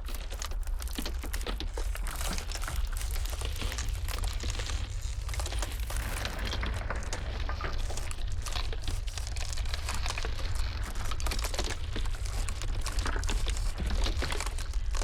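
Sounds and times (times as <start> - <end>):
ice crackling and snapping: 0.0 - 15.0
low rumble of blizzard wind: 0.0 - 15.0.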